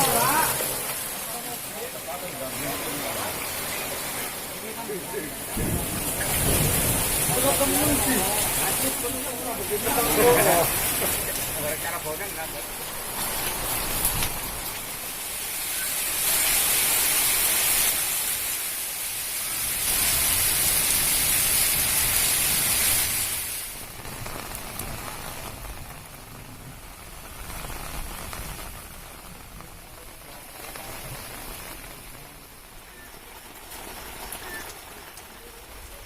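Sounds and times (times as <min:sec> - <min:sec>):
heavy rain pouring: 0:00.0 - 0:36.0.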